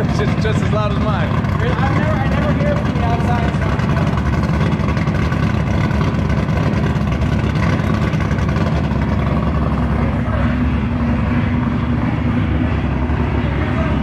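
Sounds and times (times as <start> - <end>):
engine idling with raspy exhaust: 0.0 - 14.0.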